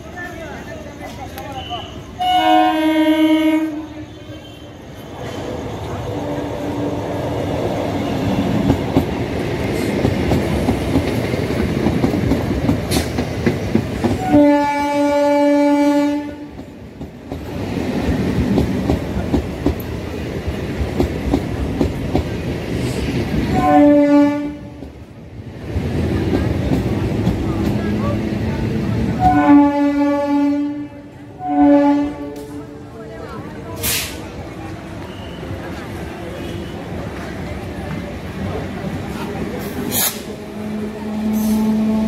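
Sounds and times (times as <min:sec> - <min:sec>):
train horn: 0:01.6 - 0:04.8, 0:14.2 - 0:16.5, 0:23.5 - 0:24.7, 0:29.2 - 0:32.6, 0:40.6 - 0:42.0
train wheels clacking on rails: 0:06.9 - 0:14.7, 0:16.3 - 0:23.8, 0:24.6 - 0:29.4.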